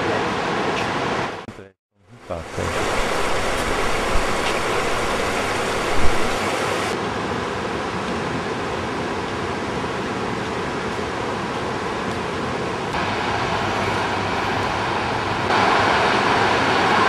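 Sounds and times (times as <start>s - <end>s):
waterfall rushing: 2.2s - 7.0s, 13.0s - 17.0s.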